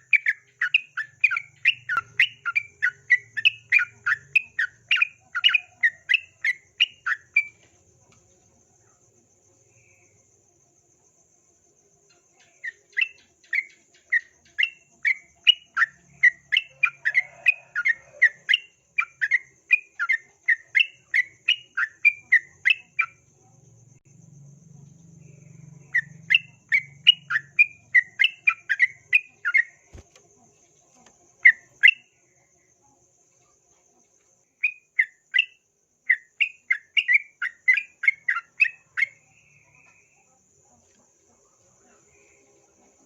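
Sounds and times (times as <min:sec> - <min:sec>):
bird chattering song: 0:00.0 - 0:07.6, 0:12.1 - 0:23.2, 0:25.5 - 0:30.0, 0:31.4 - 0:32.2, 0:34.6 - 0:40.2.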